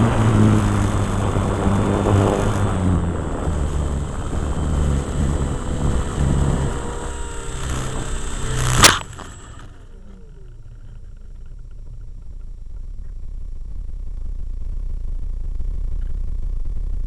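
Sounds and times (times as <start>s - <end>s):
low rumble: 0.0s - 17.0s
motor spinning down whine: 0.0s - 17.0s.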